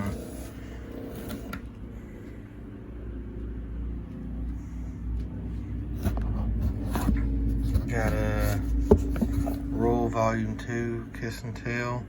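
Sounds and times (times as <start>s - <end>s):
low droning hum: 0.0s - 12.0s.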